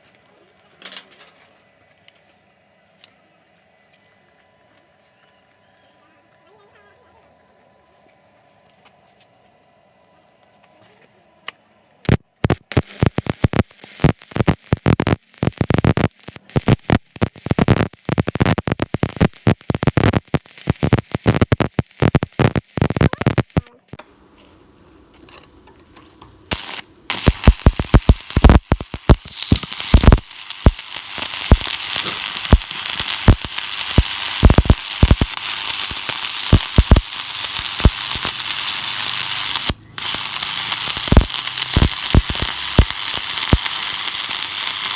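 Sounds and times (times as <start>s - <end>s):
welding arc crackling and popping: 12.0s - 24.0s, 26.2s - 44.9s.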